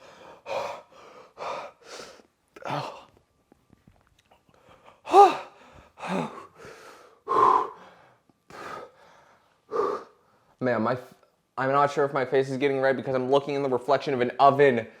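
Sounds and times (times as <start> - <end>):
man gasping and breathing hard: 0.0 - 3.2, 4.5 - 10.4.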